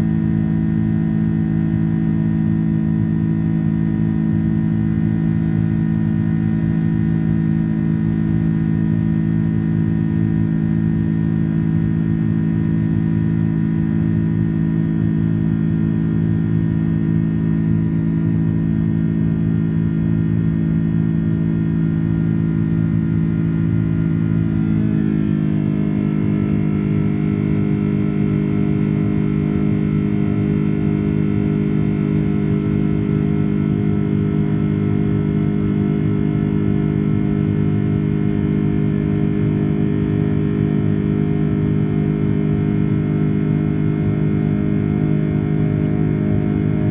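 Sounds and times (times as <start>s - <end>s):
jet engines droning: 11.8s - 46.9s.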